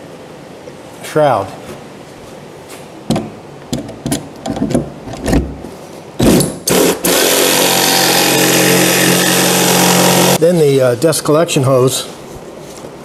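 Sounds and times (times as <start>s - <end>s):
parts knocking and clattering: 3.1s - 5.7s
electric shop motor running: 6.2s - 10.4s.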